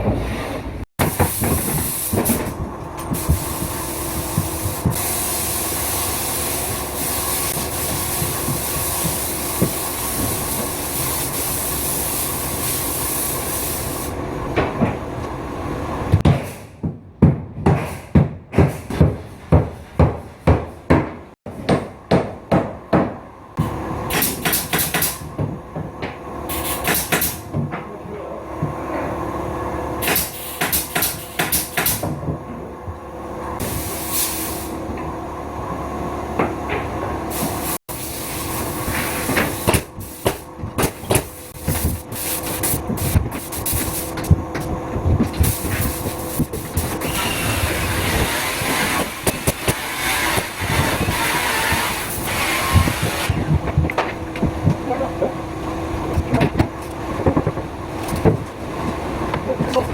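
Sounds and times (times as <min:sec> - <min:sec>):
machine noise with high hiss: 0:01.0 - 0:14.4, 0:23.6 - 0:25.4, 0:26.3 - 0:27.6, 0:28.2 - 0:32.1, 0:33.2 - 0:59.9.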